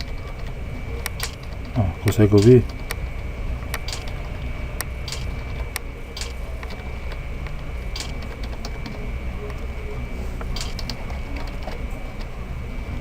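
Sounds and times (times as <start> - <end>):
typewriter keystroke clicks: 0.0 - 3.0, 3.7 - 4.2, 4.8 - 6.8, 7.9 - 9.0, 10.6 - 11.8
steady low hum: 0.0 - 13.0.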